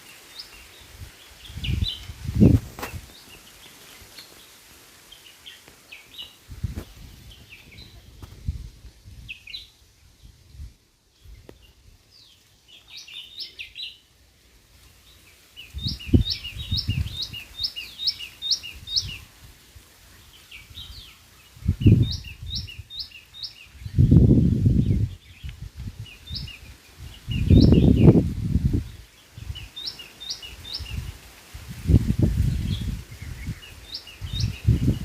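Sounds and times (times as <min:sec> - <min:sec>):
bird chirping: 0:15.0 - 0:19.2, 0:20.2 - 0:24.2, 0:24.8 - 0:28.2, 0:28.9 - 0:31.1.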